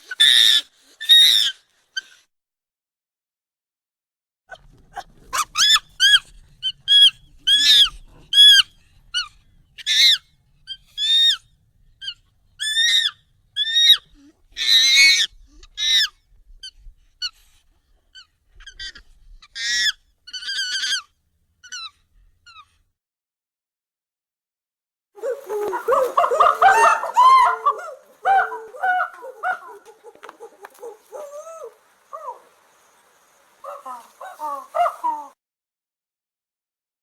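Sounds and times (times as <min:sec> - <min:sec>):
high-pitched monkey calls: 0:00.1 - 0:02.2, 0:05.3 - 0:17.4, 0:18.2 - 0:22.7, 0:25.2 - 0:35.4.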